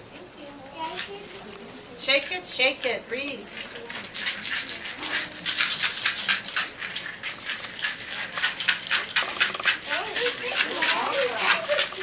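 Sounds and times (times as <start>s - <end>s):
hand-held rattle shaken rapidly: 3.5s - 12.0s.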